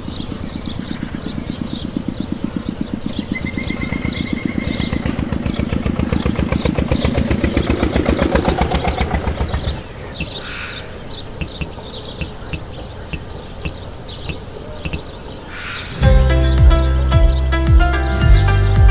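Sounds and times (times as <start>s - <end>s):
tractor engine chugging: 0.0s - 10.4s
small birds chirping: 0.0s - 18.6s.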